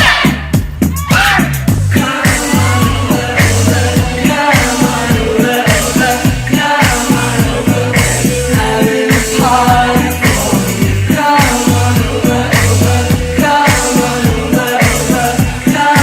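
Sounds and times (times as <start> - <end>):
bass line: 0.0 - 16.0
drum beat: 0.0 - 16.0
person singing: 1.0 - 16.0.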